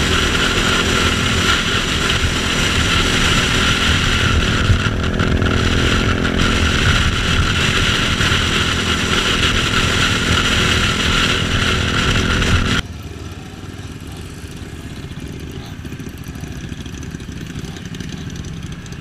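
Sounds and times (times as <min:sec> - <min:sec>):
wind rush: 0:00.0 - 0:12.8
motorcycle engine running: 0:00.0 - 0:19.0.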